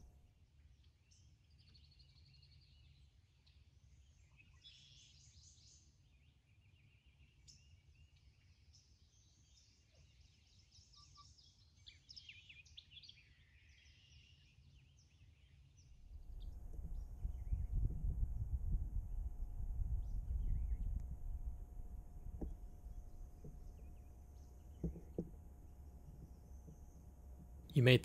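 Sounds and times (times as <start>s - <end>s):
faint songbirds chirping: 0.0s - 28.0s
low background rumble: 16.1s - 28.0s.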